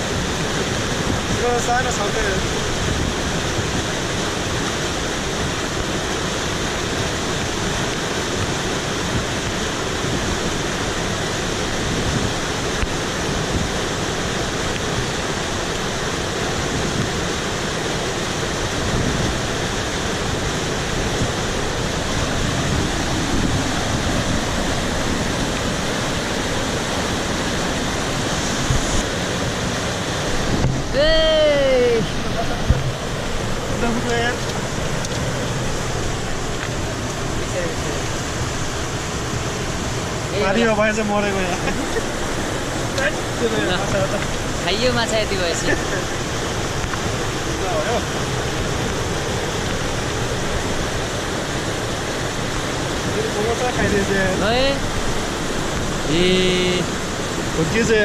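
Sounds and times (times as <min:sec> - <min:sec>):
mountain stream rushing: 0:00.0 - 0:58.0.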